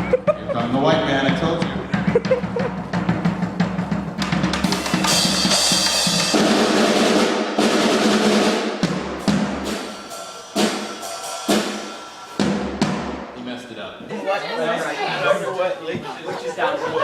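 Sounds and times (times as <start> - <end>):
drum kit playing: 0.0 - 13.9
cymbal crashes: 4.7 - 13.5.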